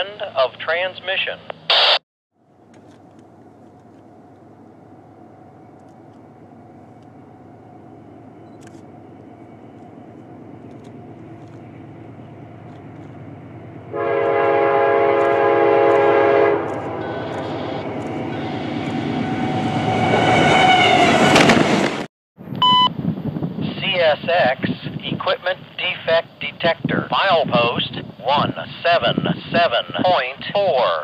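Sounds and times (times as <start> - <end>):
locomotive rumble: 2.4 - 30.6
rush of passing train: 4.4 - 22.1
train air horn blast: 13.9 - 21.4.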